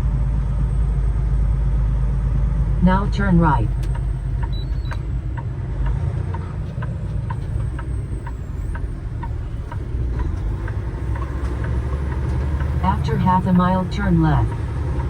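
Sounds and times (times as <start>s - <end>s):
truck engine rumbling: 0.0s - 15.0s
turn signal clicking: 3.3s - 15.0s.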